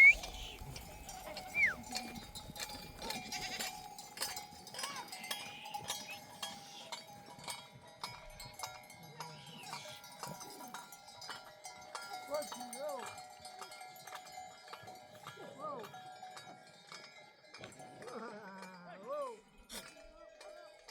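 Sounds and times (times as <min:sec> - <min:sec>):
sheep bleating: 0:00.0 - 0:02.1, 0:03.0 - 0:03.8
sheep bells clinking: 0:00.0 - 0:20.9.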